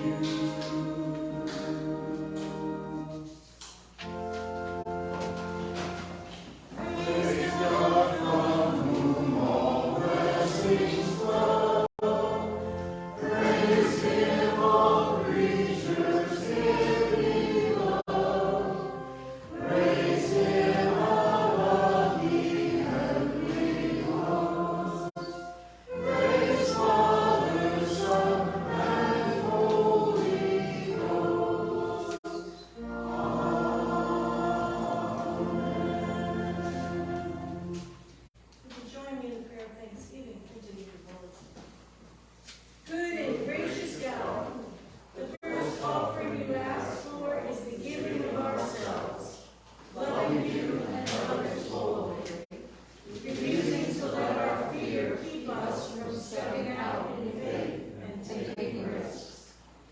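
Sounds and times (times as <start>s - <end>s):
church choir singing a hymn: 0.0s - 38.3s, 43.2s - 59.9s
sustained instrumental accompaniment: 0.0s - 38.3s.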